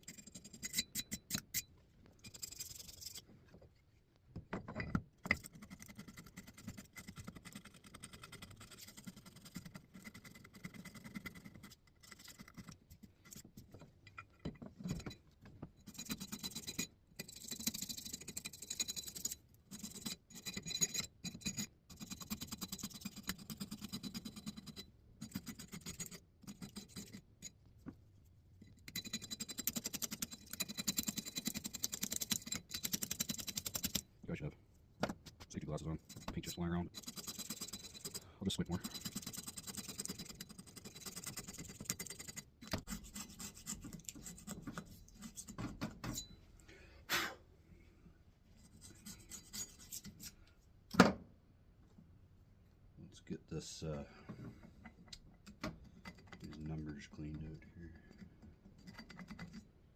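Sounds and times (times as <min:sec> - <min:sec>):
paint scraped off metal: 0:48.6 - 0:50.4.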